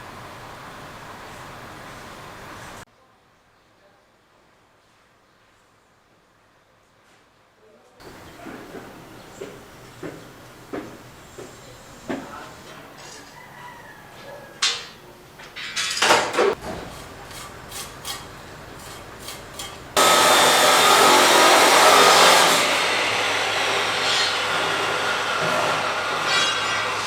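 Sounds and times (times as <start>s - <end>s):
scrapes and knocks of hand work: 14.7s - 22.7s
power tool cutting: 16.6s - 27.0s.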